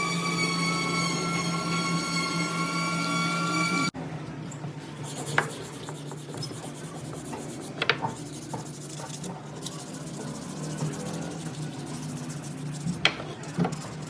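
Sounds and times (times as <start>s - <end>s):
power tool motor whine: 0.0s - 3.9s.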